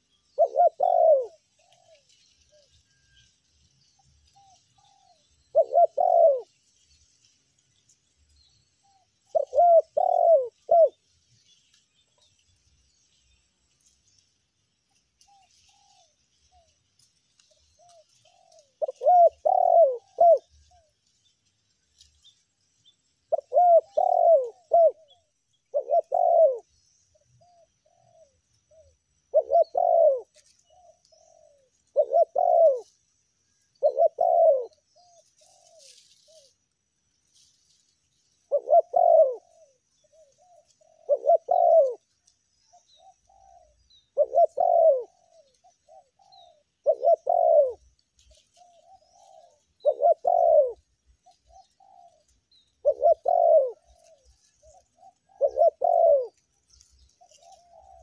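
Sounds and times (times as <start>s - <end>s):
dove cooing: 0.0s - 2.8s, 4.3s - 6.6s, 8.8s - 11.0s, 15.2s - 16.8s, 17.4s - 21.0s, 23.3s - 36.6s, 38.4s - 58.0s.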